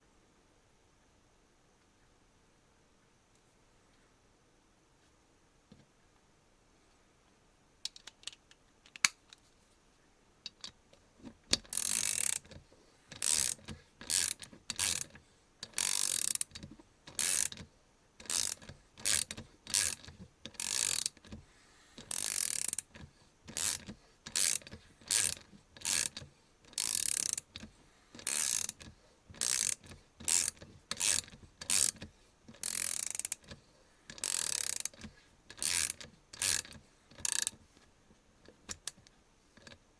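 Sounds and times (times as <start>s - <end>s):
ratchet clicking: 11.5s - 12.5s, 13.1s - 17.6s, 18.2s - 21.3s, 22.0s - 33.5s, 34.1s - 37.6s, 38.7s - 39.0s.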